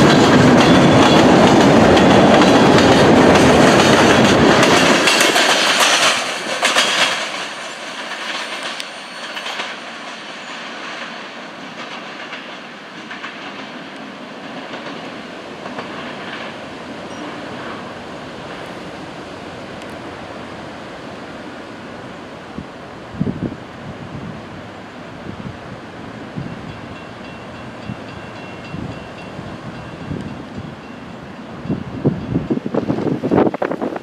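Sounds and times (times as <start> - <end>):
train wheels clacking over rails: 0.0 - 18.9, 26.3 - 33.3
train rumble: 0.0 - 34.0.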